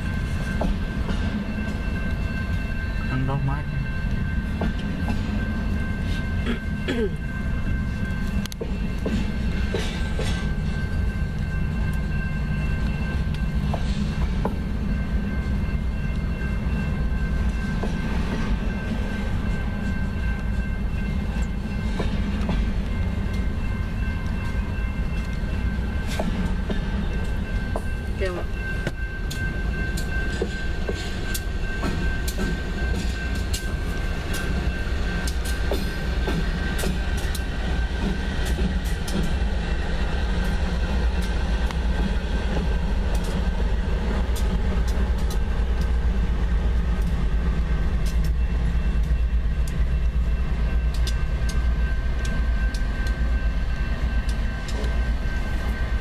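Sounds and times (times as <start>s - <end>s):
freight train rumbling: 0.0s - 56.0s.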